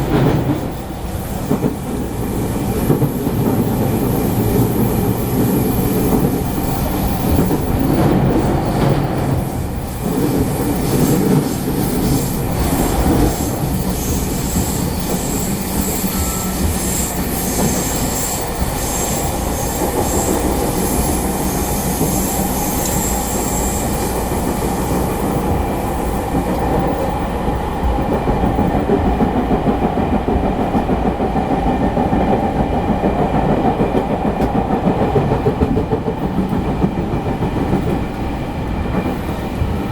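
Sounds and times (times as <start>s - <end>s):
clickety-clack over rail joints: 0.0s - 39.9s
train wheels rumbling on rail: 0.0s - 39.9s
high-pitched wheel squeal: 13.4s - 19.7s.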